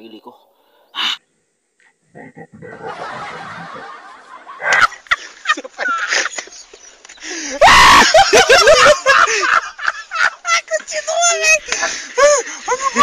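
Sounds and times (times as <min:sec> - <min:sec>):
man's high wailing laughter: 0:04.5 - 0:06.4, 0:07.5 - 0:10.6, 0:12.1 - 0:13.0.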